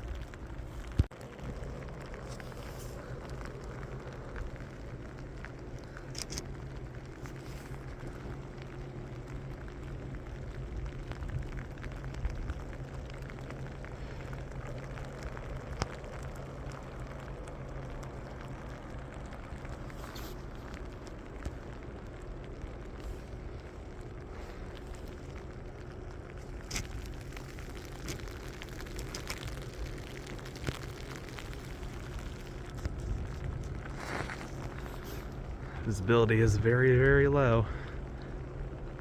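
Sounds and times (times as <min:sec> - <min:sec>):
ice pellets ticking on surfaces: 0:00.0 - 0:39.0
low rumble: 0:00.0 - 0:39.0.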